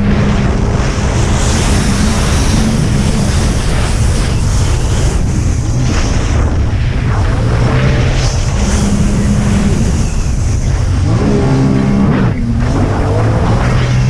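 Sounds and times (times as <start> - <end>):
heavy wind: 0.0 - 14.0
jet ski engine at speed: 0.0 - 14.0
water spray: 0.1 - 6.4.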